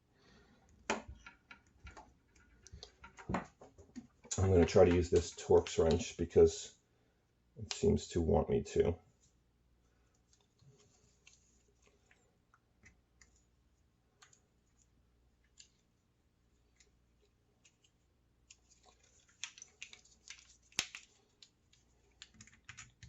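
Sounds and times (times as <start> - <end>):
small metal clicks and scraping: 16.7 - 23.0.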